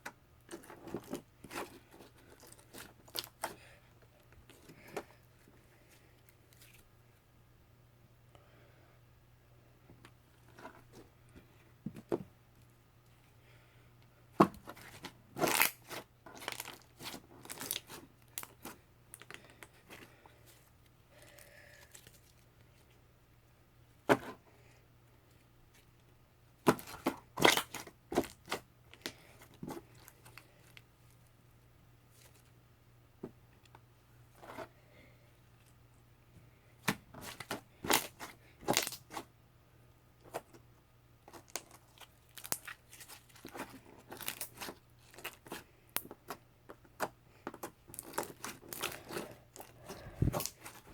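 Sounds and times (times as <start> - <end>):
slime crackling and popping: 41.3 - 46.2.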